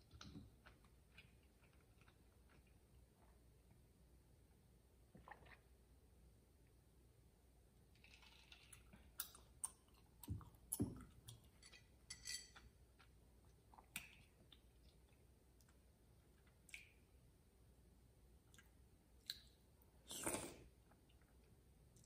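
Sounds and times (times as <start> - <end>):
soft chewing: 0.0 - 3.9, 7.9 - 17.2, 18.4 - 22.0.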